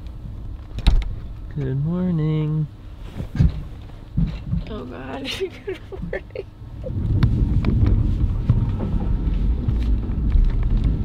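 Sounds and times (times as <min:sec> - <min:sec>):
train rumble inside carriage: 0:04.6 - 0:11.0.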